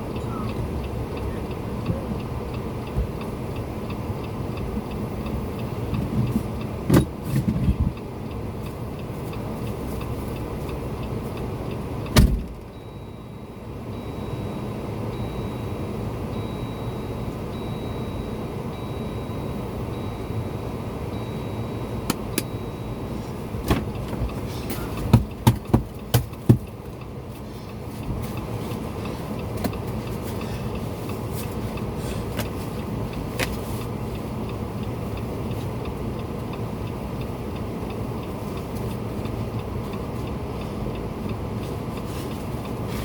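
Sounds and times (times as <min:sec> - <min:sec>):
vehicle engine running: 0:00.0 - 0:43.0
loud thump: 0:12.2 - 0:12.6.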